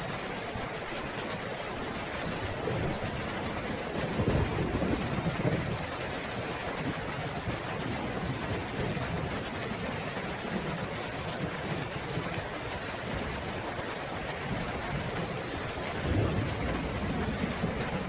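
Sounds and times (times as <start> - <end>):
steady rainfall: 0.0 - 18.0
low rumble of thunder: 2.5 - 12.3, 14.4 - 18.0.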